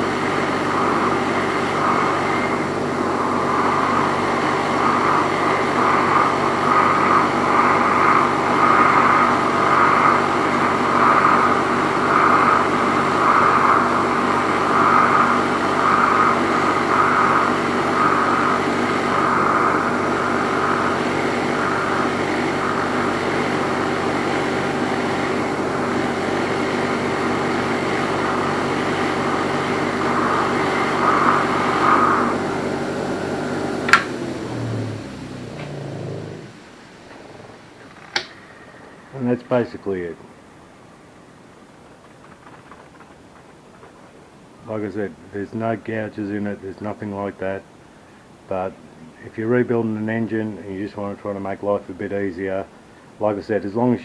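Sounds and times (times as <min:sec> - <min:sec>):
wire wheel brushing metal: 0:00.0 - 0:33.9
motor winding down: 0:00.0 - 0:39.9
switch click: 0:33.9 - 0:34.1, 0:38.1 - 0:38.4.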